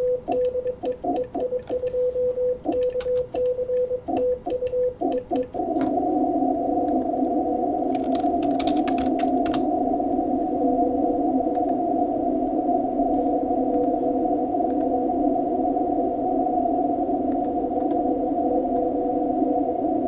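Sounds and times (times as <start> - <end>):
morse code sidetone: 0.0 - 5.9
key clicks: 0.3 - 5.9
radio receiver hiss: 5.0 - 15.5.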